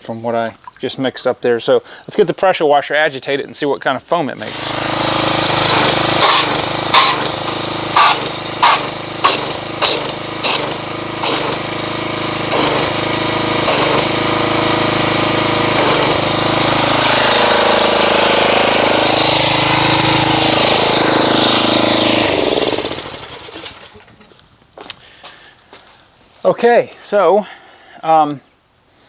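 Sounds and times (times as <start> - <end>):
water spray churning in bucket: 4.4 - 24.1
pressure washer engine running: 4.4 - 24.2.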